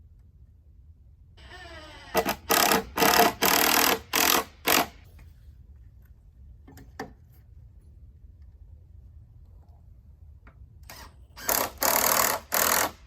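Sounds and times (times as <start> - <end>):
power tool motor whining in bursts: 1.4 - 5.0, 10.9 - 13.0.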